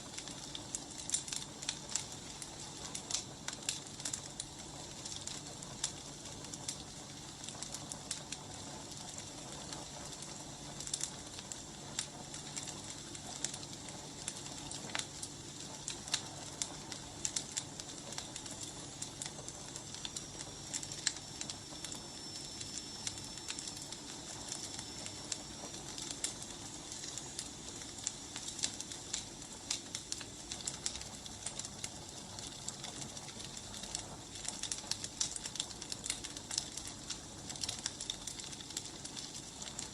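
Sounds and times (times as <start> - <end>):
firewood crackling and popping: 0.0 - 39.9
faint high whistling tone: 19.0 - 23.8.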